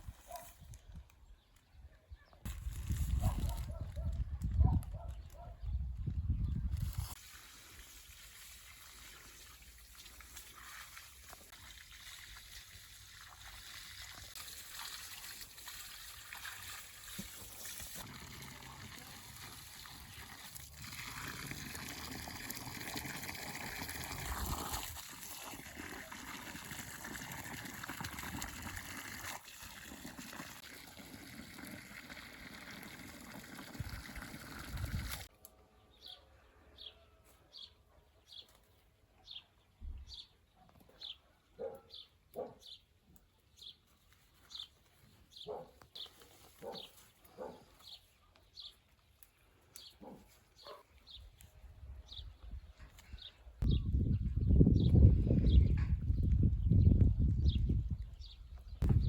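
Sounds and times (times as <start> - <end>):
water trickling and splashing: 6.9 - 35.3.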